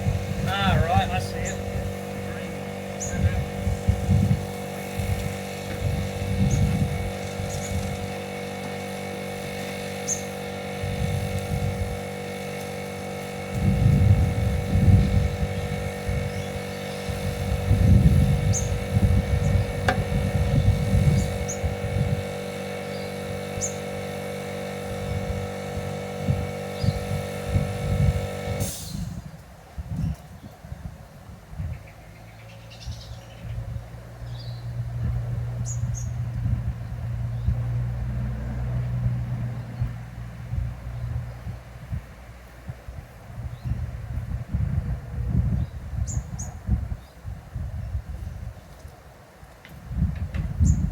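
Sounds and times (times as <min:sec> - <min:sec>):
birds chirping: 0:00.0 - 0:04.7, 0:05.4 - 0:08.5, 0:09.9 - 0:10.5, 0:14.8 - 0:17.4, 0:18.1 - 0:21.9, 0:22.8 - 0:24.0, 0:26.7 - 0:27.2, 0:31.6 - 0:34.8, 0:35.6 - 0:36.2
engine running with low rumble: 0:00.0 - 0:50.9.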